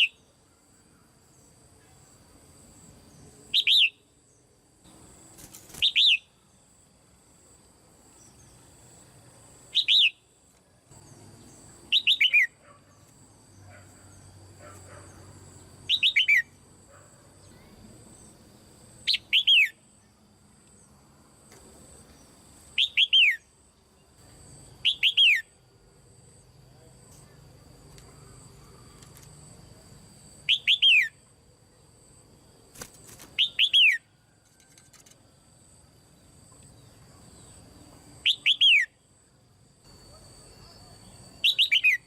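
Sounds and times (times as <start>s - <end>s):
bird whistled calls: 9.8s - 10.2s, 11.9s - 12.6s, 30.5s - 31.2s, 41.4s - 42.0s.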